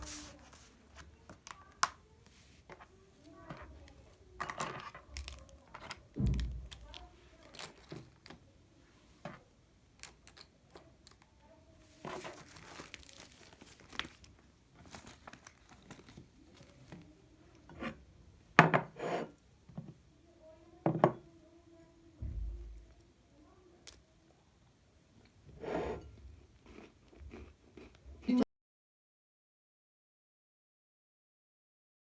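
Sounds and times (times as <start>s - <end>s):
crinkling rustle: 0.0s - 2.5s, 4.6s - 8.4s, 11.8s - 17.1s.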